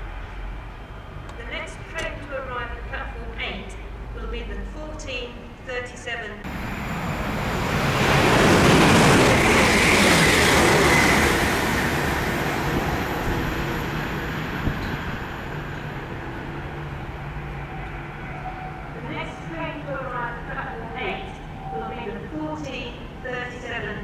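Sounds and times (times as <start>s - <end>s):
train passing at speed: 0.0s - 4.8s, 6.4s - 24.0s.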